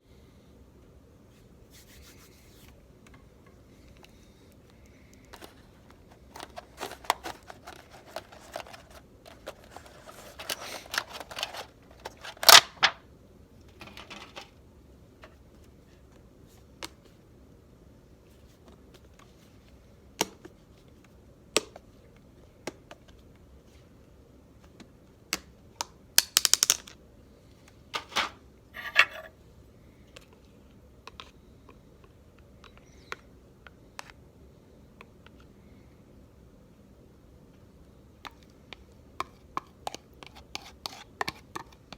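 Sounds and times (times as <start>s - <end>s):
rustling and scraping: 1.3s - 2.8s, 5.3s - 13.0s, 28.0s - 29.3s.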